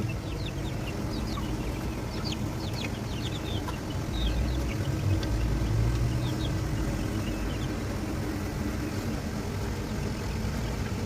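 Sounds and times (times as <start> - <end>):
faint chick peeps: 0.0 - 7.8
fan and air cooler humming: 0.0 - 11.0.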